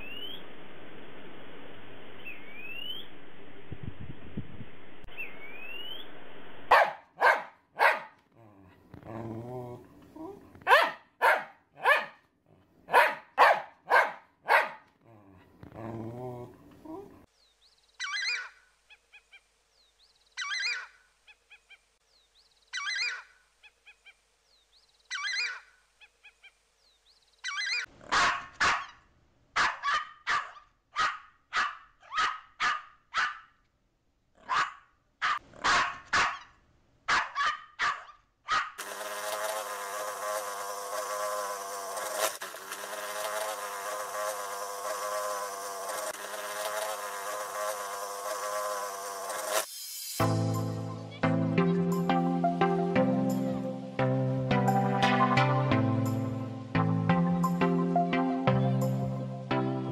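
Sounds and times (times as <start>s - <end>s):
small dog barking: 6.7s - 8.2s, 10.2s - 12.2s, 12.9s - 14.9s, 28.0s - 29.0s, 29.6s - 33.6s, 34.4s - 36.5s, 37.1s - 38.8s
honeybee buzzing: 38.8s - 49.7s.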